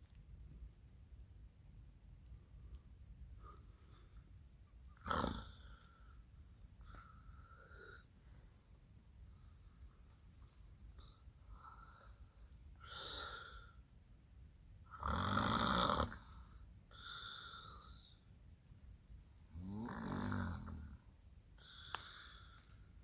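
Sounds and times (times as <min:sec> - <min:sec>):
man snoring: 0:05.0 - 0:05.8, 0:14.9 - 0:18.0, 0:19.5 - 0:21.0.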